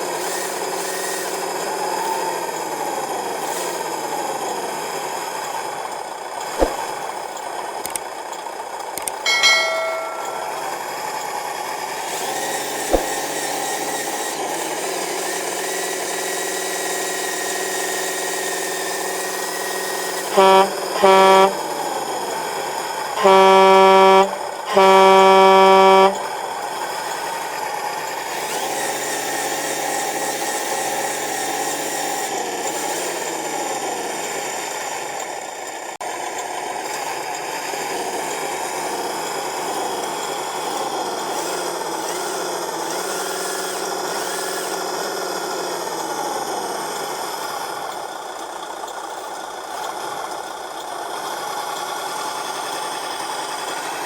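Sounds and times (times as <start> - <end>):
toy truck motor whining: 13.8 - 35.1
toy truck horn tooting: 20.2 - 22.1, 23.1 - 26.6.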